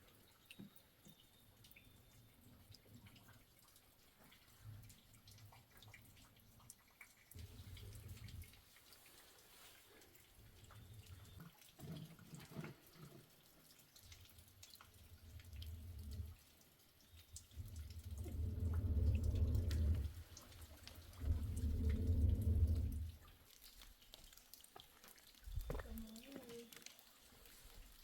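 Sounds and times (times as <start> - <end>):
water dripping: 0.0 - 28.0
low rumbles: 17.4 - 23.3.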